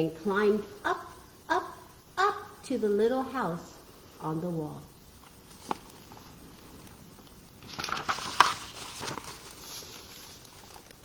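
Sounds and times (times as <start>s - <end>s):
paper page rustling: 5.3s - 7.0s, 7.6s - 11.0s
sharp paper crackle: 5.4s - 7.0s, 7.6s - 11.0s.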